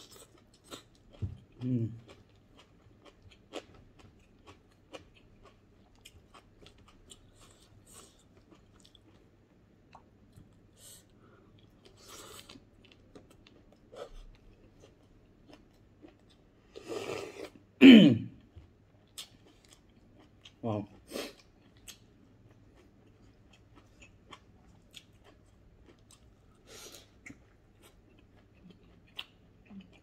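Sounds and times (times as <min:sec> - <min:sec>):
person chewing and lip-smacking: 0:00.0 - 0:09.2, 0:19.0 - 0:30.0.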